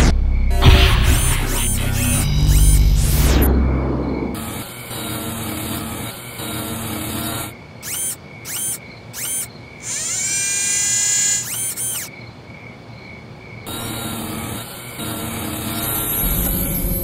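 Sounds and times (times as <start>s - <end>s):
rising electronic whine: 0.0s - 12.1s, 13.7s - 17.0s
electronic chirping beeps: 0.5s - 3.5s, 6.4s - 12.1s
steady low hum: 13.6s - 17.0s.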